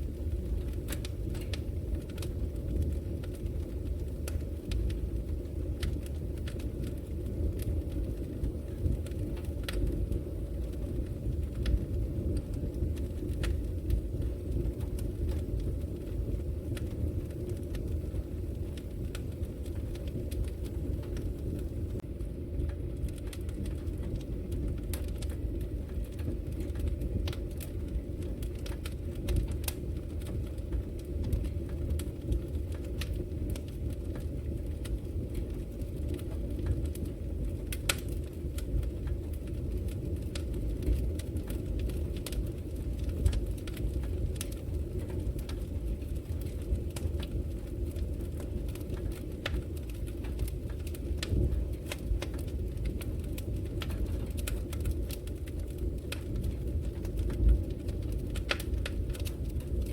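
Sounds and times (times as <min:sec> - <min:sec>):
low rumble of flames: 0:00.0 - 0:59.9
wood crackling and popping: 0:00.0 - 0:59.9.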